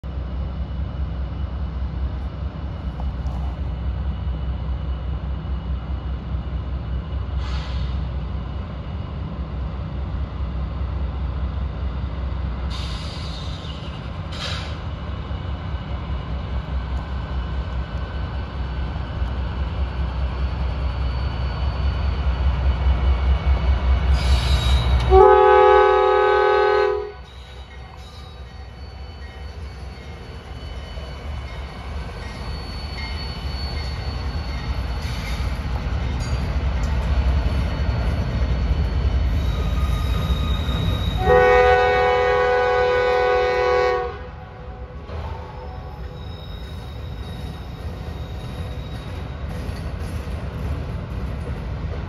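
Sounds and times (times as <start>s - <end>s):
diesel locomotives rumbling: 0.0s - 52.0s
locomotive air horn chord: 25.1s - 27.2s, 41.2s - 44.9s.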